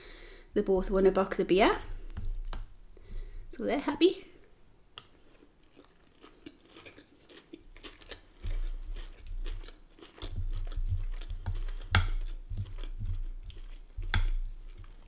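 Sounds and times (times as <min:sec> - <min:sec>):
chewing crunchy salad: 0:05.0 - 0:15.0.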